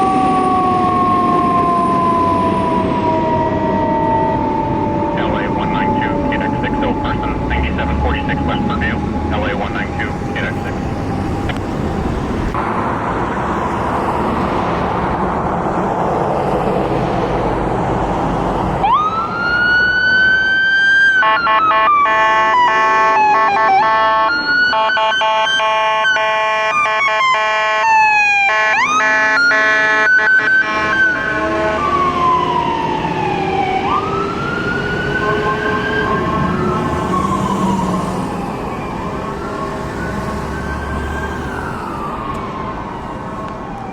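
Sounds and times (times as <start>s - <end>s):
fire engine siren wailing: 0.0s - 43.9s
road and engine noise: 0.0s - 43.9s
electronic horn blasts: 21.2s - 27.9s.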